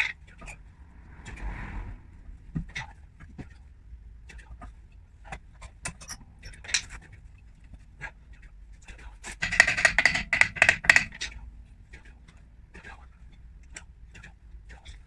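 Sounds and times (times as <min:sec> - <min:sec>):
rapid loud scraping: 0:00.0 - 0:03.8
hand tools clicking and knocking: 0:09.4 - 0:11.3.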